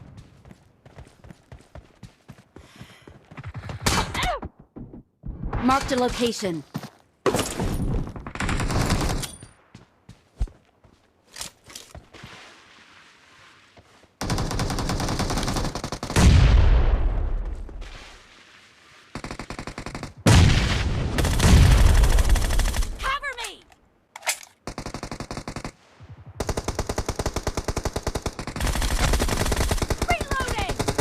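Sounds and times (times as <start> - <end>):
video game automatic gunfire: 26.4 - 31.0.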